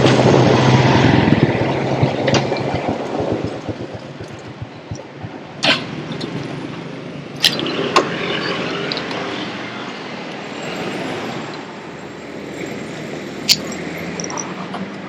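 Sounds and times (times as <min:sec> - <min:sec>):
motorbike engine running: 0:00.0 - 0:06.5
road and traffic noise: 0:00.0 - 0:15.0.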